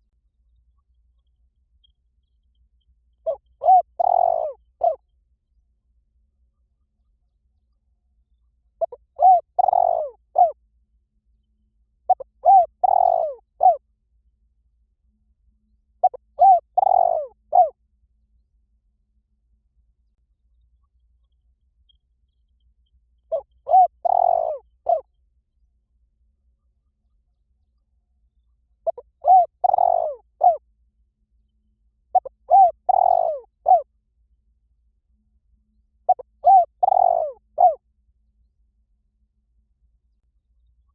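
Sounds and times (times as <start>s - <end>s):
dove cooing: 3.2s - 5.0s, 8.8s - 10.6s, 12.1s - 13.8s, 16.0s - 17.7s, 23.3s - 25.1s, 28.8s - 30.6s, 32.2s - 33.9s, 36.1s - 37.8s.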